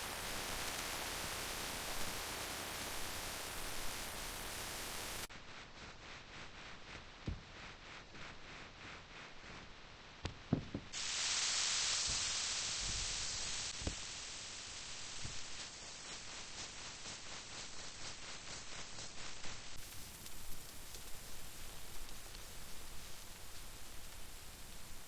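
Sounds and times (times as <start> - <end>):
rain hissing: 0.0 - 5.3, 10.9 - 25.0
raindrops ticking: 19.8 - 25.0.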